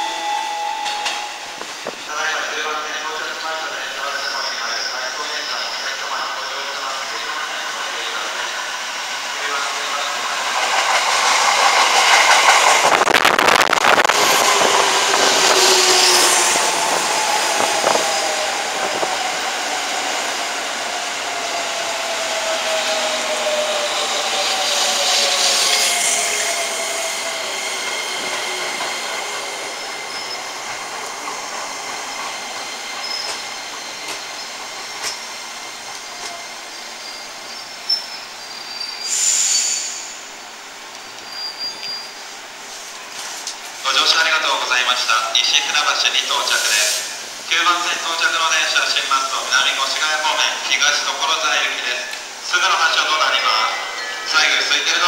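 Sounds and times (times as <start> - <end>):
train wheel and running noise: 7.3 - 13.2, 22.3 - 38.2.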